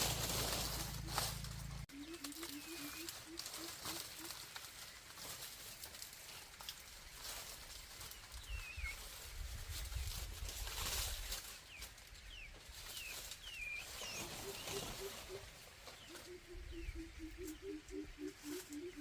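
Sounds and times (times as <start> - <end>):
small birds chirping: 0.0 - 19.0
hen clucking: 2.0 - 4.4, 14.0 - 19.0.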